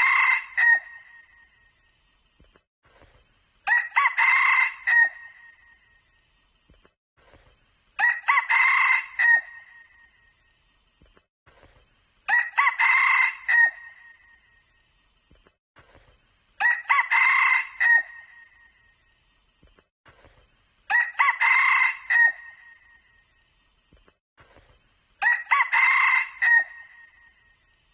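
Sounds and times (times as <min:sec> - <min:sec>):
rooster crowing: 0:00.0 - 0:01.0, 0:03.7 - 0:05.4, 0:08.0 - 0:09.7, 0:12.3 - 0:14.0, 0:16.6 - 0:18.2, 0:20.9 - 0:22.8, 0:25.2 - 0:27.2.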